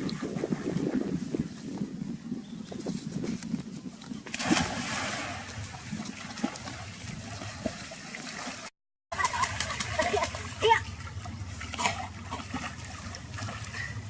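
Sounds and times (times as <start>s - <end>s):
water sloshing and trickling: 0.0s - 14.0s.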